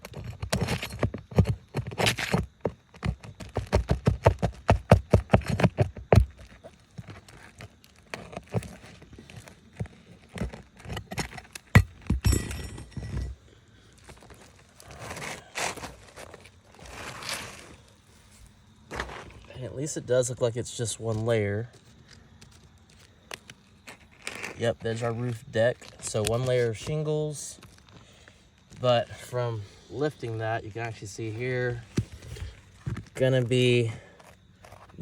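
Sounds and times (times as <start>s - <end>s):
tools knocking on roof shingles: 0.0s - 9.0s, 9.8s - 13.4s
tool scraping: 5.3s - 13.4s, 23.3s - 26.9s.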